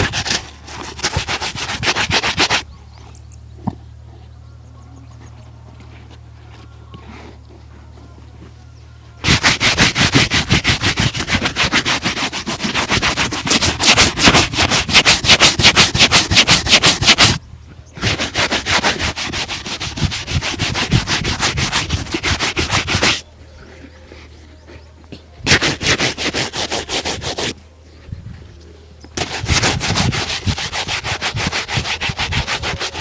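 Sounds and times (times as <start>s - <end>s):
cloth rubbing shoe leather: 0.0s - 2.6s, 9.2s - 17.4s, 18.0s - 23.2s, 25.4s - 27.6s, 29.2s - 33.0s.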